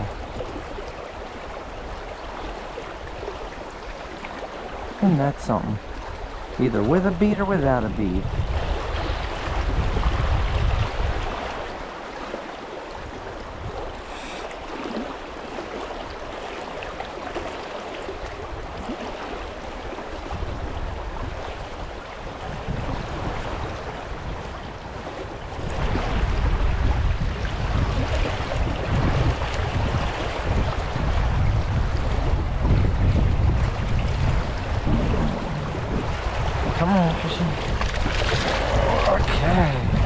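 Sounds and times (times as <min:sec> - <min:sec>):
river current rushing: 0:00.0 - 0:40.0
low rumble: 0:31.9 - 0:36.8.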